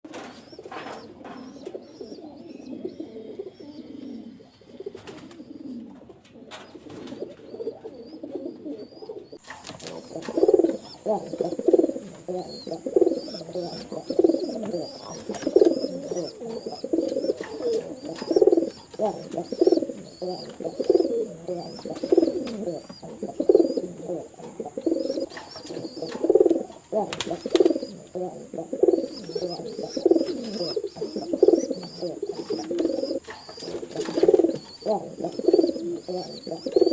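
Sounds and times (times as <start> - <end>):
pigeons cooing: 0.1 - 36.9
faint high chirp: 28.9 - 36.9.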